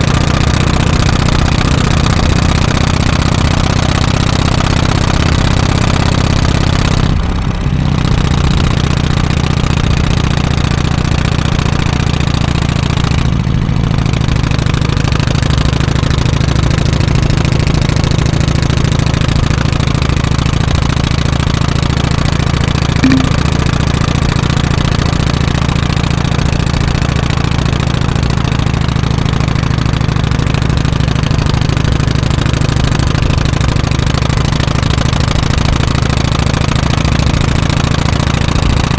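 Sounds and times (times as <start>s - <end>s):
motorcycle engine running: 23.0s - 23.6s.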